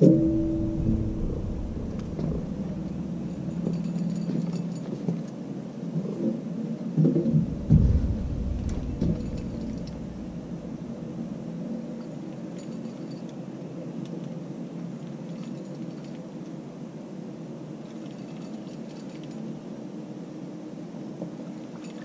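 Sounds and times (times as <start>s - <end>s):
wind buffeting microphone: 0.0s - 5.0s, 7.3s - 11.8s
knocks and thuds on boat: 0.5s - 4.5s, 7.4s - 11.2s.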